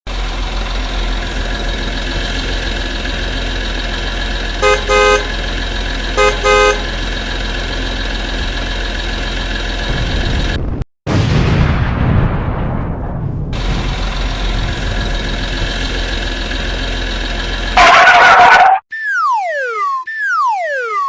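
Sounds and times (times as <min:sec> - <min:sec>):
vehicle engine running: 0:00.1 - 0:10.8, 0:13.6 - 0:18.8
horn double beeps: 0:04.6 - 0:05.4, 0:06.1 - 0:07.0, 0:17.8 - 0:21.0.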